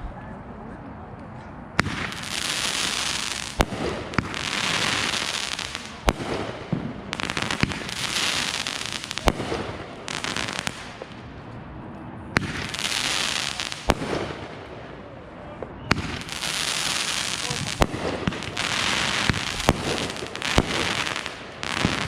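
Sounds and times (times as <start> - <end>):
fireworks bangs: 1.8 - 11.2, 12.3 - 15.0, 15.6 - 22.0
fireworks crackling hiss: 1.8 - 11.2, 12.4 - 14.7, 15.9 - 22.0.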